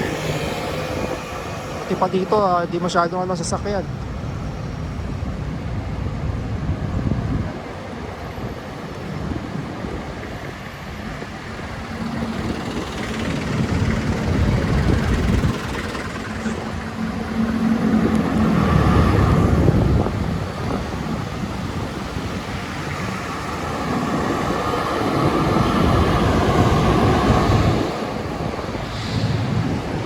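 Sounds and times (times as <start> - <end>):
engine hum: 0.0 - 2.9, 8.7 - 30.0
passing vehicles rumbling: 0.0 - 30.0.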